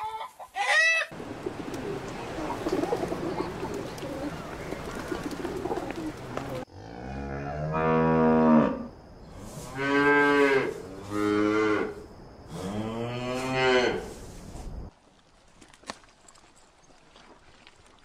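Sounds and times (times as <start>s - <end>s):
pigeons cooing and fluttering: 1.2s - 6.6s.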